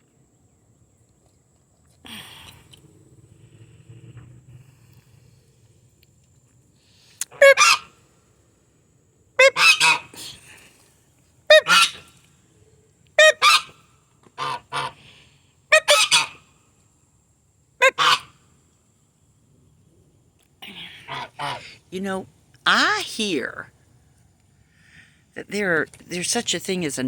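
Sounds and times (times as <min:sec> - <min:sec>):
goose honking: 0:07.3 - 0:07.9, 0:09.4 - 0:10.2, 0:11.5 - 0:12.0, 0:13.2 - 0:13.8, 0:14.4 - 0:15.0, 0:15.7 - 0:16.4, 0:17.8 - 0:18.3, 0:21.1 - 0:21.8.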